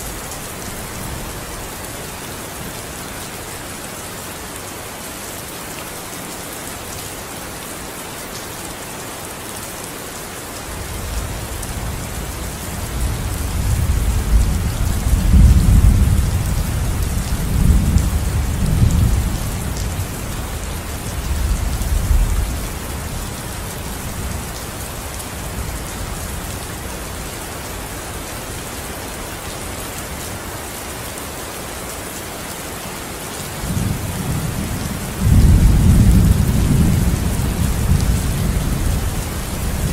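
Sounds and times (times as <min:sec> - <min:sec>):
steady rain: 0:00.0 - 0:39.9
thunder rumbling: 0:33.7 - 0:39.9.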